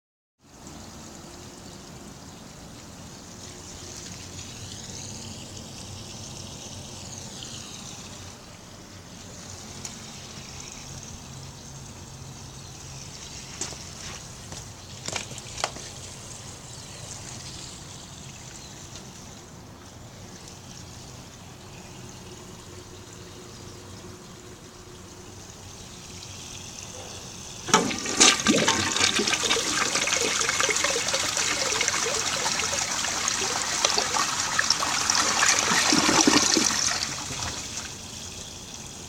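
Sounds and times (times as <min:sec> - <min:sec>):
toilet flushing and refilling: 0:22.2 - 0:39.0.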